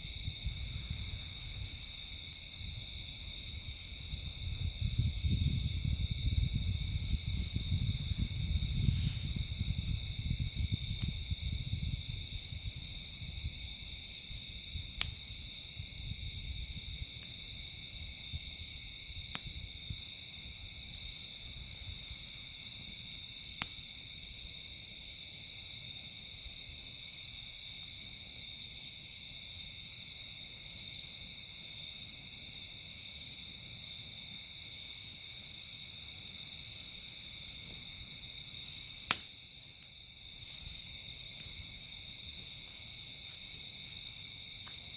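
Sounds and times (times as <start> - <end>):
campfire popping: 0.0 - 24.4, 34.1 - 44.9
insects chirping: 0.0 - 44.9.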